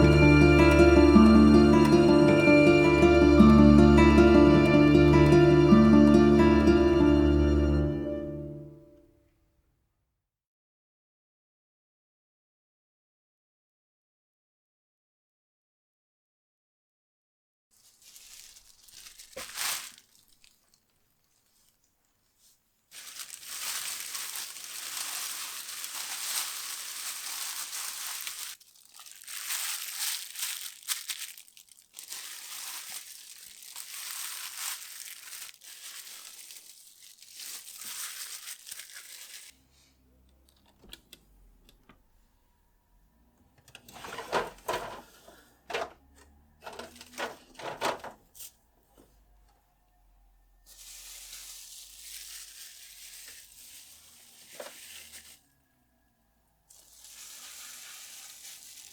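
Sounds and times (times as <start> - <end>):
plastic bags rustling: 0.0 - 3.0, 17.8 - 39.6, 44.0 - 45.9, 46.6 - 48.5, 50.7 - 55.5, 56.7 - 58.9
items knocking when set down: 43.9 - 46.0, 46.6 - 48.2.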